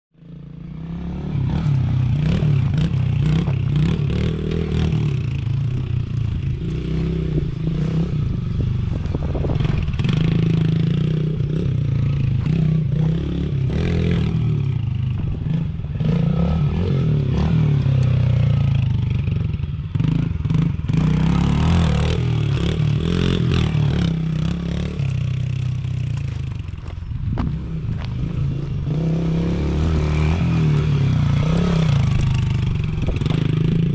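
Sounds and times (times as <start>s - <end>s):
motorbike engine revving: 0.2s - 33.9s.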